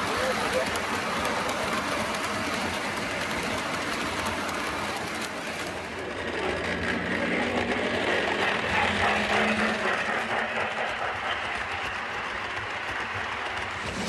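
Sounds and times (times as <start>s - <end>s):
wheels rattling on rails: 0.0s - 14.0s.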